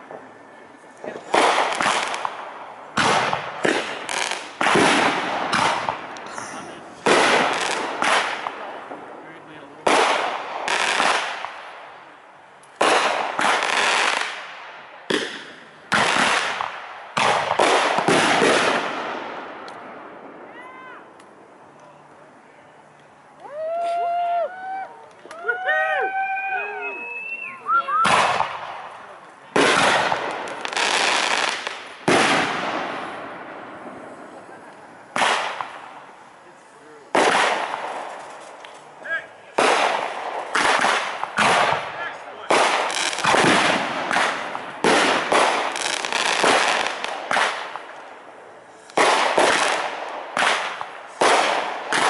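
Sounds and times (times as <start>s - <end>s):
firework bangs with rumbling echo: 1.1s - 12.1s, 12.8s - 20.5s, 28.0s - 36.2s, 37.1s - 38.5s, 39.5s - 47.9s, 49.0s - 52.0s.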